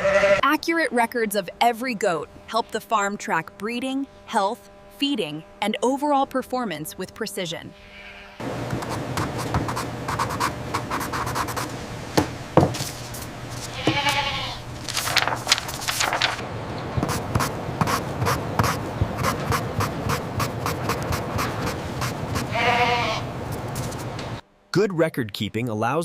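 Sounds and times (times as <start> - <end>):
goats bleating: 0.0 - 0.4, 7.8 - 8.4, 13.7 - 14.7, 22.4 - 23.3.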